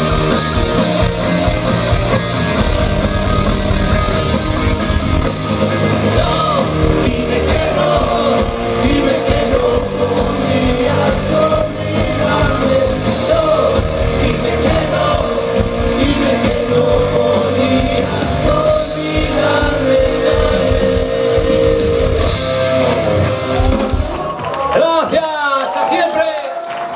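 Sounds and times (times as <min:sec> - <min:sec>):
live rock band: 0:00.0 - 0:25.2
person singing: 0:05.7 - 0:24.2.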